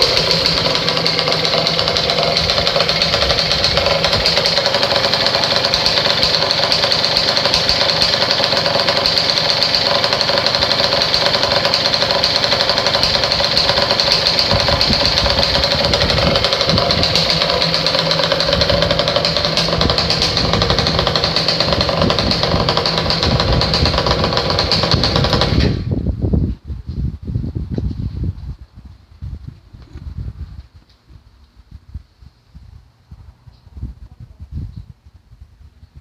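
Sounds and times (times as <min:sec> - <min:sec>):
two-stroke engine idling: 0:00.0 - 0:25.9.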